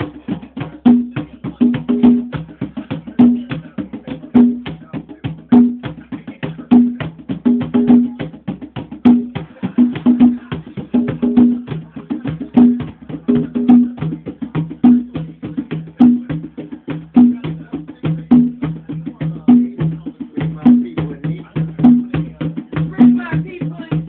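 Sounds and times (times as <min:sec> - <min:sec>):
fast dense drumming: 0:00.0 - 0:24.0.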